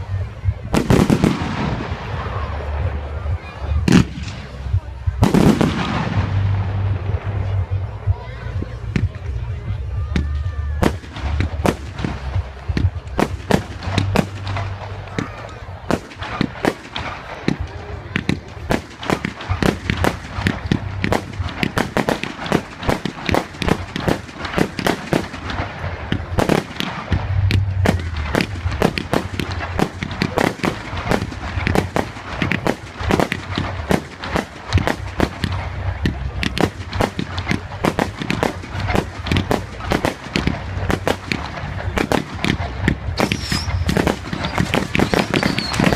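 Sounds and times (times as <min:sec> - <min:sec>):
low rumble: 0:00.0 - 0:15.8, 0:16.5 - 0:45.9
fireworks bangs and crackles: 0:00.0 - 0:45.9.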